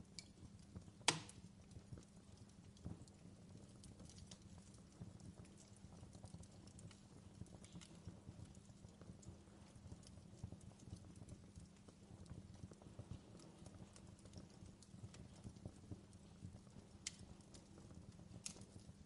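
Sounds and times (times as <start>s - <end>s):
fireplace fire crackling: 0.0s - 19.0s
sharp fire pops: 1.0s - 1.5s, 13.1s - 19.0s.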